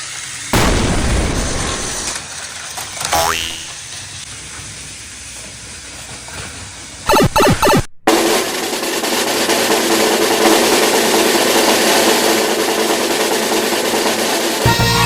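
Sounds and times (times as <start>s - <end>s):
snare drum roll: 8.1s - 14.6s.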